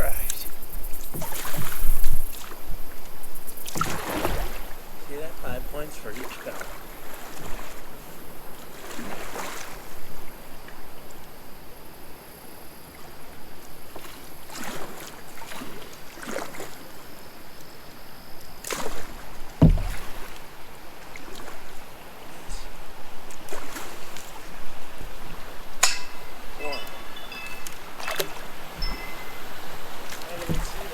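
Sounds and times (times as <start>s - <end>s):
paddle strokes splashing: 0.0s - 11.3s, 13.0s - 30.9s
dull thump: 19.5s - 20.4s, 25.8s - 30.9s.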